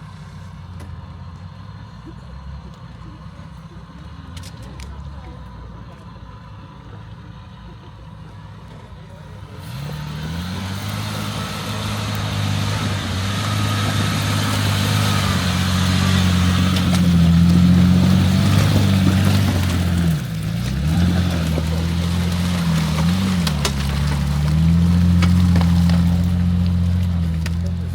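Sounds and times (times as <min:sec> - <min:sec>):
off-road vehicle engine revving: 0:00.0 - 0:27.9
tyre and terrain noise: 0:00.0 - 0:27.9.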